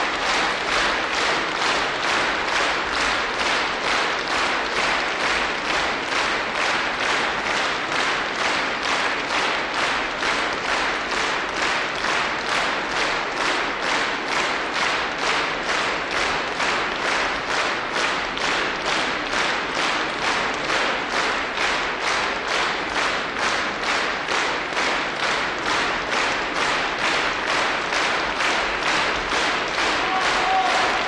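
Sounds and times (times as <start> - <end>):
audience clapping in unison: 0.0 - 31.0.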